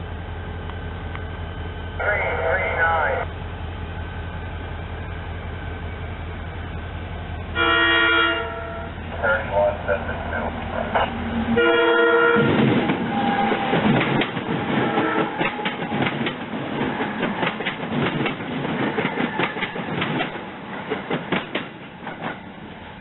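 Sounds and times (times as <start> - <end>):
train wheels clattering: 12.4 - 22.5.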